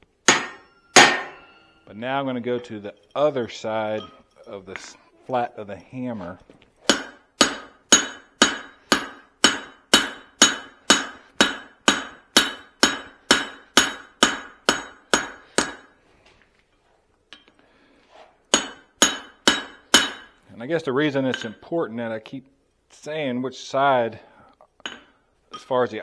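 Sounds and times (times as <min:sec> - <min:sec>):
hammer striking metal on anvil: 0:00.2 - 0:01.9, 0:06.9 - 0:16.0, 0:18.5 - 0:20.4, 0:21.3 - 0:21.6, 0:24.8 - 0:25.7.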